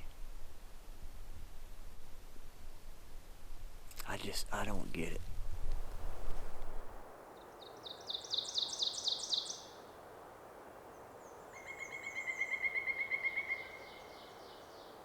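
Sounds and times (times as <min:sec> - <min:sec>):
songbird rapid trill: 0:07.4 - 0:09.8, 0:11.4 - 0:15.0.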